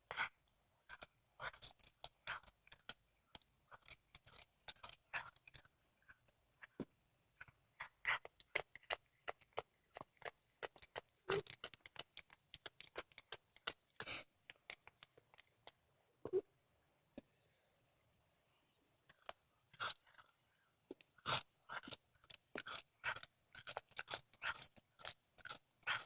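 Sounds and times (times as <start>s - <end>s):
cat chewing wet crunches: 0.8s - 5.7s, 7.8s - 15.6s, 21.2s - 26.0s.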